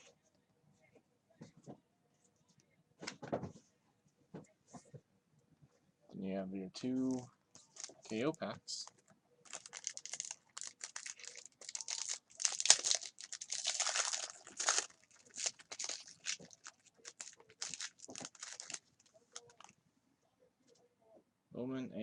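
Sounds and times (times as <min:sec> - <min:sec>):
wrappers tearing and crinkling: 0:09.4 - 0:19.7.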